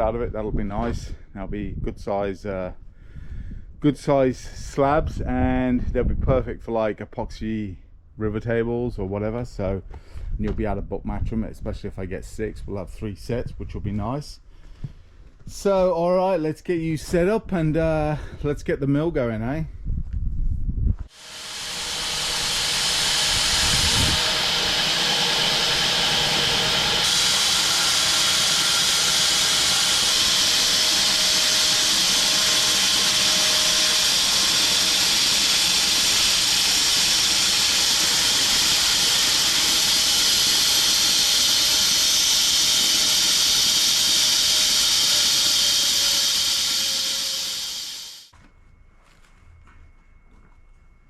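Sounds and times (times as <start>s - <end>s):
bandsaw sawmill cutting log: 21.1s - 48.3s.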